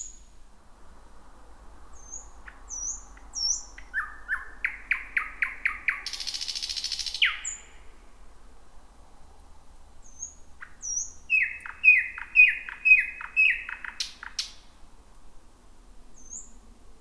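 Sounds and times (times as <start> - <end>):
nightingale singing: 0.0 - 0.4, 1.9 - 8.0, 10.0 - 14.7, 16.2 - 16.6.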